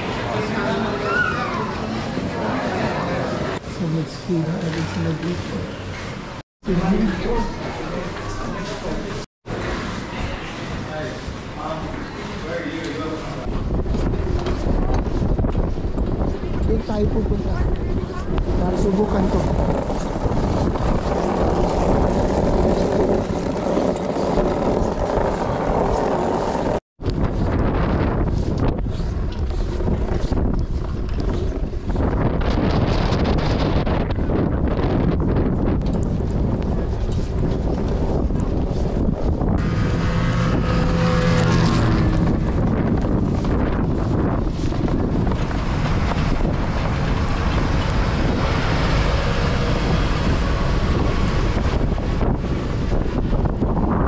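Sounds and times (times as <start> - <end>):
wind buffeting microphone: 13.0 - 54.0.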